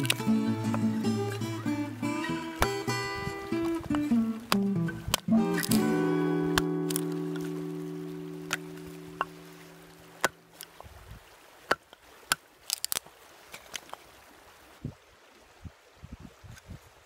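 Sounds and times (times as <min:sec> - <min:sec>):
guitar note ringing: 0:00.0 - 0:10.6
campfire crackling and snapping: 0:00.0 - 0:10.8, 0:11.9 - 0:14.0.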